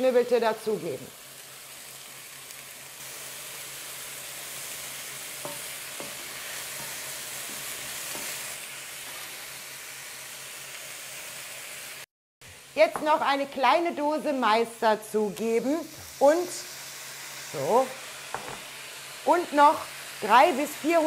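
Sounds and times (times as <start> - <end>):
meat sizzling in hot oil: 0.0 - 21.0
vegetables scraped into wok: 2.5 - 12.0.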